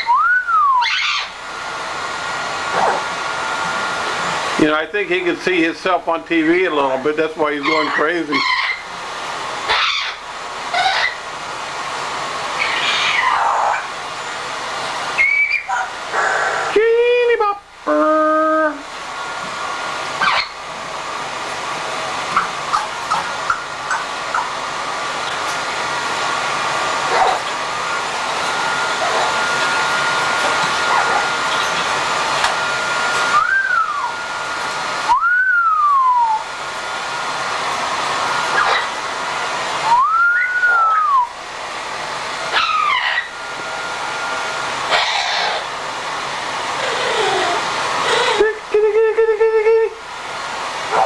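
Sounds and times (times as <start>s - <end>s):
parrot whistling: 0.0s - 1.4s, 7.6s - 8.9s, 9.7s - 11.3s, 12.6s - 13.9s, 15.2s - 16.8s, 20.2s - 20.6s, 22.3s - 24.5s, 28.6s - 36.5s, 38.5s - 39.0s, 39.8s - 41.4s, 42.5s - 43.6s, 44.9s - 45.7s, 46.8s - 48.5s
loud steady hiss: 0.0s - 51.0s.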